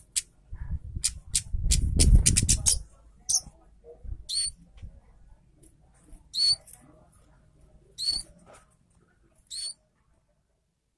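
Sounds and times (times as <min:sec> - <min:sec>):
bird squeaky call notes: 0:06.4 - 0:06.6, 0:08.0 - 0:08.3, 0:09.5 - 0:09.8.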